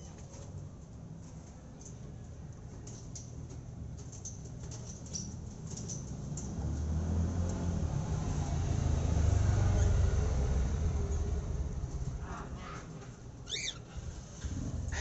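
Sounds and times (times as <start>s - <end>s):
small birds chirping: 13.4s - 14.0s.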